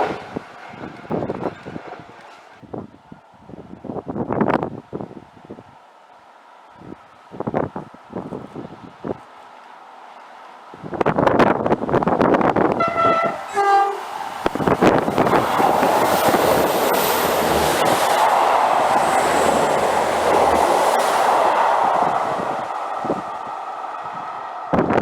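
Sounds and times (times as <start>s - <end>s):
rush of wheels on rail: 0.0s - 25.0s
train two-tone horn: 12.7s - 14.1s.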